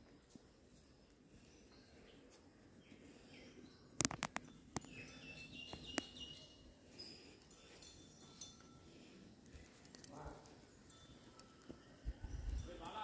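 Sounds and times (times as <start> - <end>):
birds chirping: 0.4 - 13.0
sharp clicks: 4.0 - 4.9.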